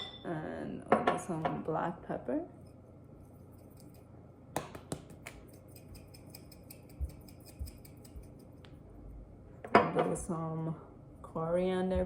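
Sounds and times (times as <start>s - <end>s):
pepper grinder ticking: 5.5s - 8.6s.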